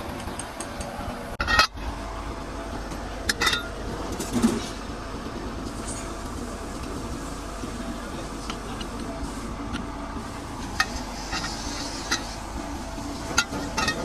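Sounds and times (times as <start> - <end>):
workshop hum: 0.0 - 14.0
hand tools clinking on metal: 3.3 - 4.7, 13.2 - 14.0.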